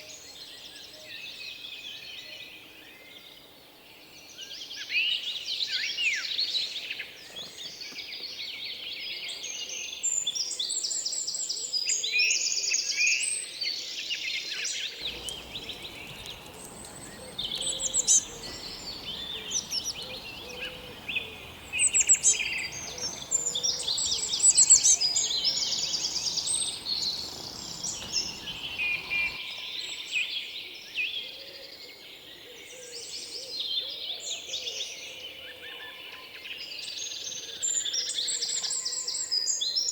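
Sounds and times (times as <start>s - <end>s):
small birds chirping: 15.0s - 29.4s.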